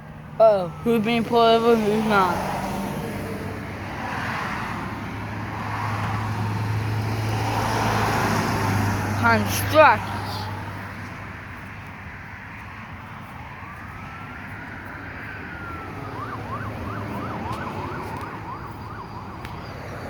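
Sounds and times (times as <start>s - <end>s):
faint emergency vehicle siren: 0.0s - 20.0s
roadside traffic noise: 0.0s - 20.0s.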